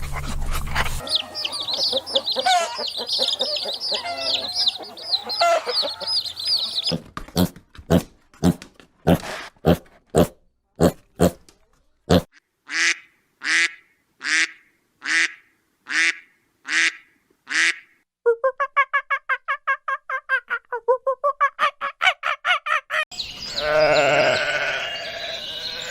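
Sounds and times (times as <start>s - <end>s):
longer animal calls: 1.0s - 7.0s, 23.5s - 25.9s
rapid chattering call: 1.0s - 7.0s.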